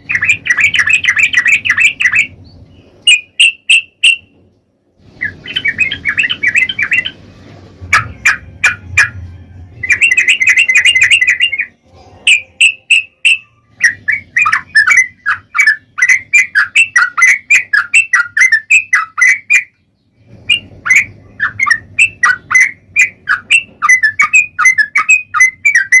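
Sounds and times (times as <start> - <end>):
bird singing rapid chirps: 0.0 - 4.4, 5.1 - 26.0.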